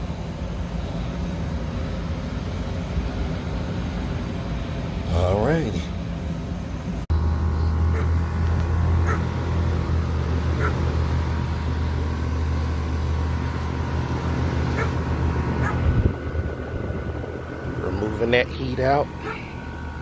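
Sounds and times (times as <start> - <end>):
heat pump unit humming: 0.0 - 20.0
dog yipping: 7.9 - 8.1, 9.0 - 9.3, 10.6 - 10.8, 14.8 - 15.0, 15.6 - 15.8, 19.2 - 19.5.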